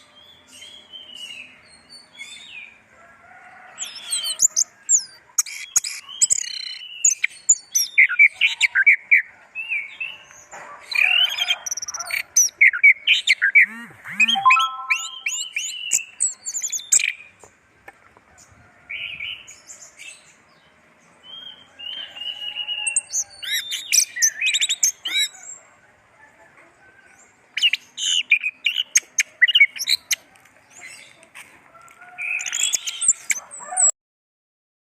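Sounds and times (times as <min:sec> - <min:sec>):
thrush chirping song: 0:13.6 - 0:15.9.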